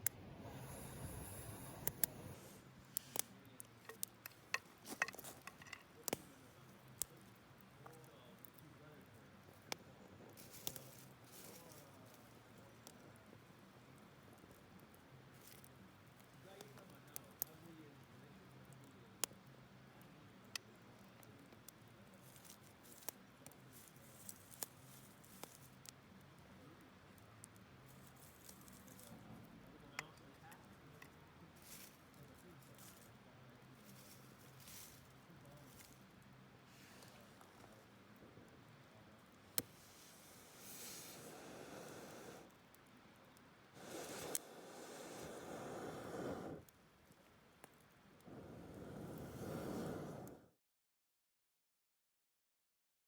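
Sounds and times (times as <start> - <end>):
campfire crackling and popping: 0.0 - 31.2, 31.8 - 50.4
faint steady background noise: 0.0 - 50.6.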